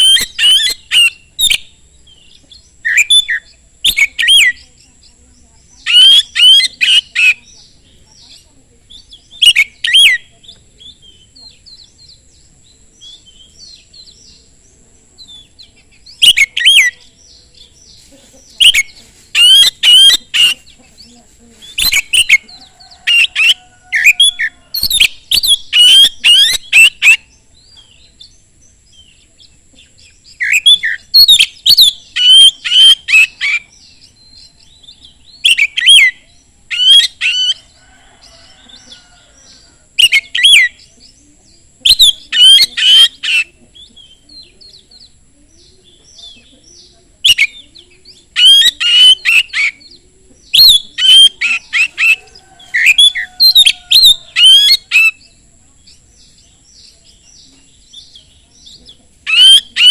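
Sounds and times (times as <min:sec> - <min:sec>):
bird singing whistled phrases: 0:00.0 - 0:04.6, 0:16.1 - 0:17.1, 0:23.1 - 0:27.3, 0:30.3 - 0:37.6, 0:41.8 - 0:44.9, 0:46.8 - 0:52.2, 0:59.3 - 0:59.9.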